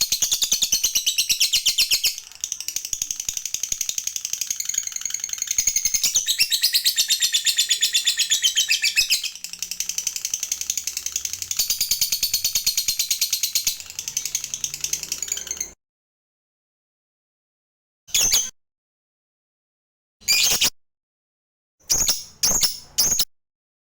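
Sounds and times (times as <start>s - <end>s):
lovebird shrill chattering chirps: 0.0s - 15.7s.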